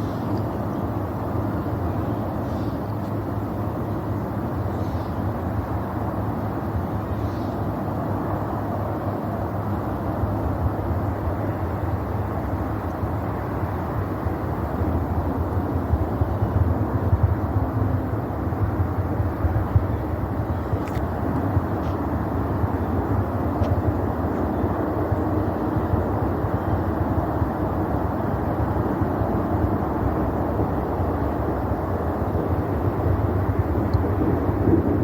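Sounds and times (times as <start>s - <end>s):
distant rocket engine rumble: 0.0s - 35.0s.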